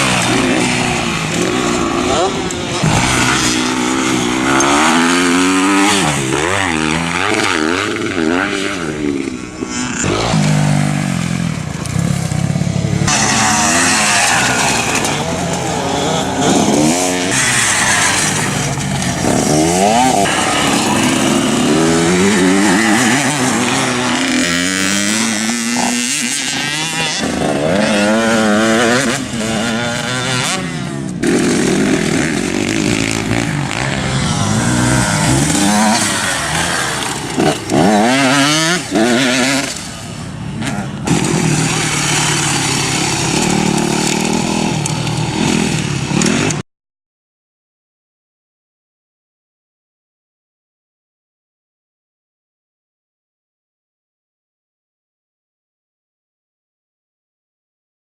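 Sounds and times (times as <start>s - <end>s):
motocross motorcycle engines revving: 0.0s - 46.6s.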